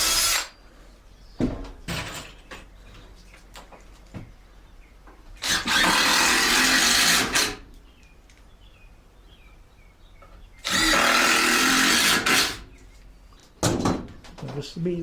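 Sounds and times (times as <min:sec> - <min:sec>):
power drill boring into wood: 0:00.0 - 0:00.6, 0:05.4 - 0:07.6, 0:10.6 - 0:12.6.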